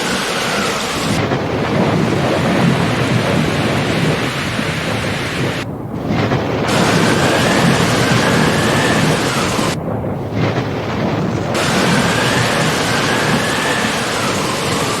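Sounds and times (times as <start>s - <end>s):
heavy rain: 0.0s - 15.0s
low thunder rumble: 0.1s - 15.0s.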